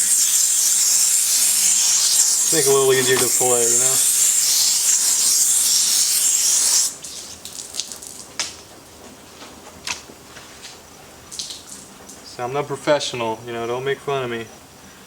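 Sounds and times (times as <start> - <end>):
running water rushing: 0.0 - 8.4
water drips: 0.0 - 8.6, 11.3 - 11.9.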